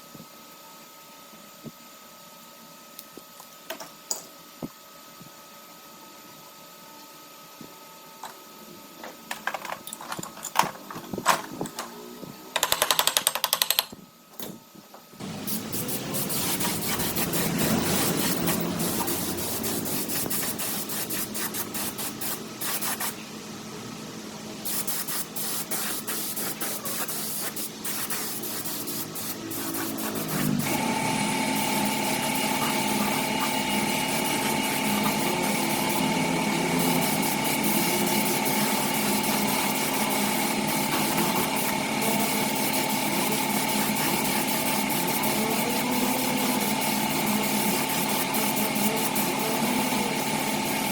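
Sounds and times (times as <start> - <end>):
small power tool whining: 30.3 - 41.9.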